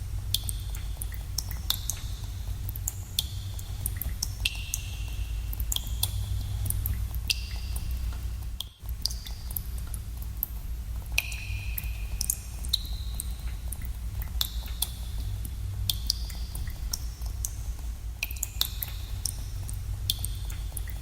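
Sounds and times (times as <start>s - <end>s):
steady low rumble: 0.0s - 21.0s
water drops plinking into pools: 0.3s - 8.0s, 11.2s - 15.0s, 15.8s - 17.6s, 18.2s - 21.0s.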